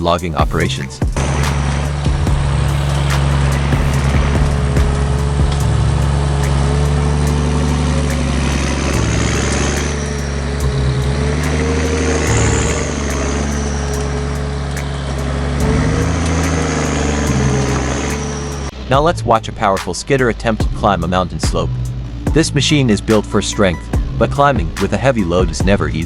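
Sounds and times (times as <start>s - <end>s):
high machine whine: 0.0s - 19.7s
heavy diesel engine running: 0.0s - 26.0s.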